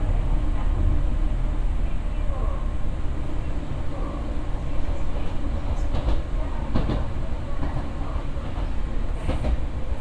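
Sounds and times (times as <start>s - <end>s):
electric train rumbling: 0.0s - 10.0s.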